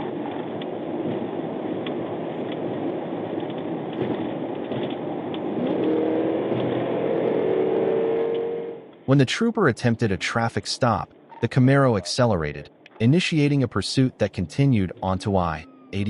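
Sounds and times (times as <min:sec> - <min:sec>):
road noise: 0:00.0 - 0:16.0
vehicle engine: 0:04.0 - 0:11.6.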